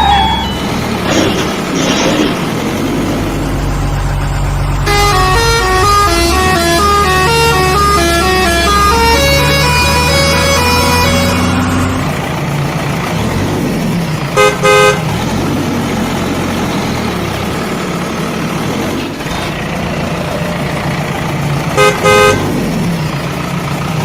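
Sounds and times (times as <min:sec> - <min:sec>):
engine running: 0:00.0 - 0:24.0
vehicle horn double toot: 0:21.8 - 0:22.4.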